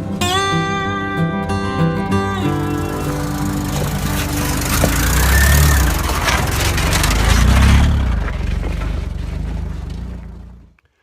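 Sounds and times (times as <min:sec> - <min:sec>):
car engine under load: 0:02.4 - 0:10.9
broad rushing noise: 0:02.6 - 0:09.8.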